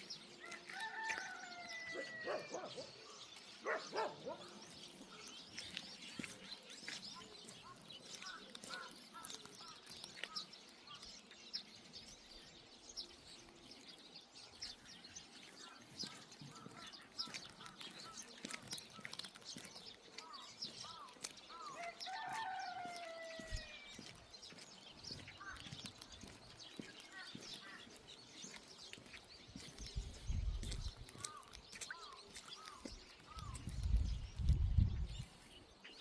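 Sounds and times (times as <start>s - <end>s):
small birds chirping: 0.0s - 36.0s
rooster crowing: 0.4s - 2.6s, 21.7s - 23.9s
faint rain patter: 15.5s - 34.5s.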